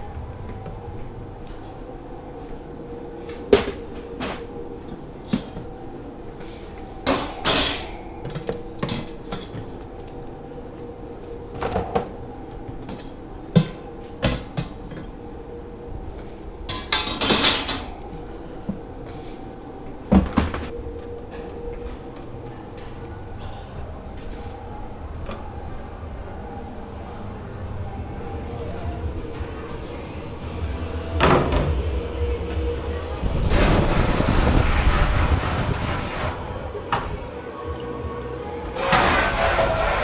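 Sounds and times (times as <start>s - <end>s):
kitchen machinery hum: 0.0s - 40.0s
crockery and pans clattering: 7.1s - 9.6s, 16.7s - 18.0s.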